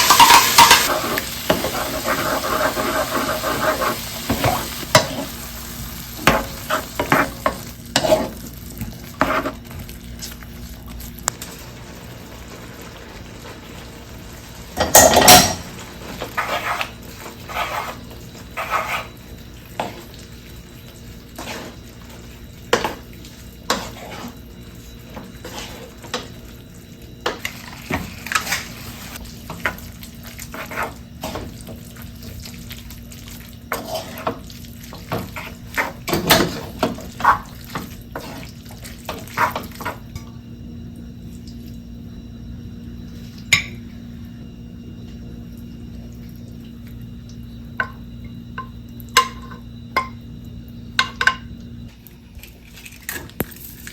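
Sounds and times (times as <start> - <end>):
kitchenware clattering: 0.0 - 1.8, 14.8 - 15.7.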